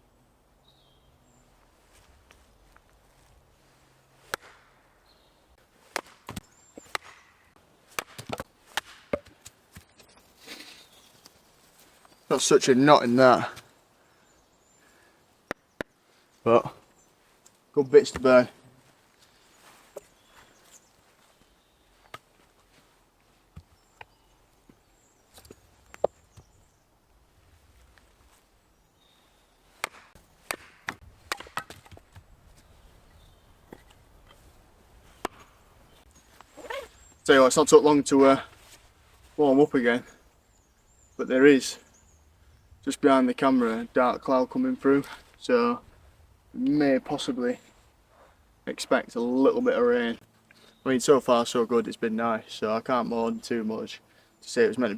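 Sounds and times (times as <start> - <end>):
blade chopping firewood: 4.3 - 4.8, 5.8 - 10.8, 29.7 - 32.3, 35.1 - 35.5.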